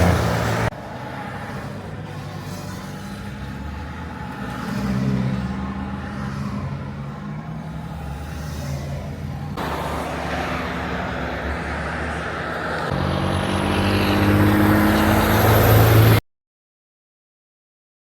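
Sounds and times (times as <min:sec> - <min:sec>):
heavy truck engines droning: 0:00.0 - 0:16.2
loud rushing noise: 0:09.6 - 0:16.2.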